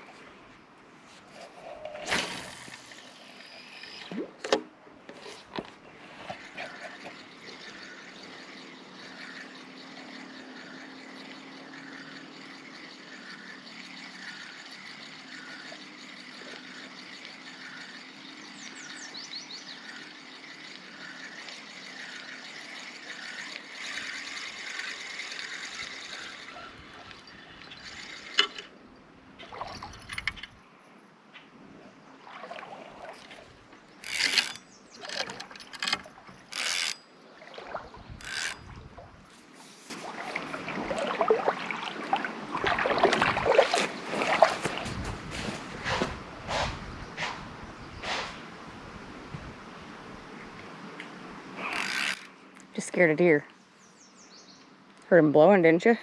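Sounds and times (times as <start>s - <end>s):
spinning reel whirring: 1.7s - 4.1s, 6.0s - 28.8s, 34.0s - 37.1s, 38.2s - 38.8s, 51.6s - 52.4s
fishing rod cast whoosh: 1.8s - 4.2s, 45.8s - 48.5s.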